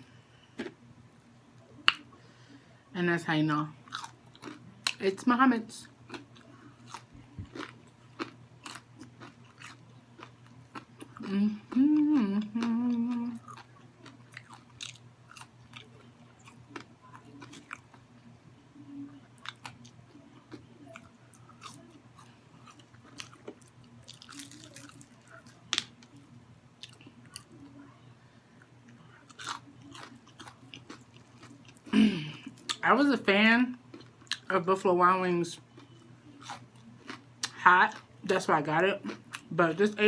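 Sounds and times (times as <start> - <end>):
chewing fried chicken: 3.8 - 5.0, 6.0 - 18.3, 19.1 - 25.9, 28.6 - 32.8, 35.6 - 38.2
person humming: 11.2 - 13.4
small crunches: 21.6 - 25.9.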